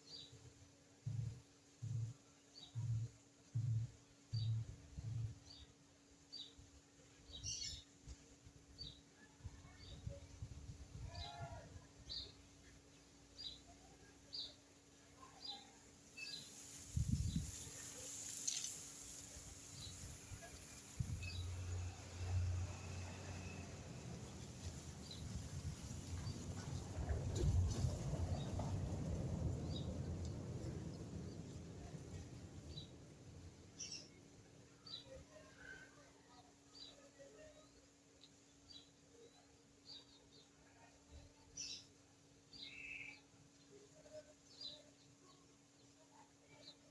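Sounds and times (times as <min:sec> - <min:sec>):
faint low rumble: 0:19.4 - 0:35.7.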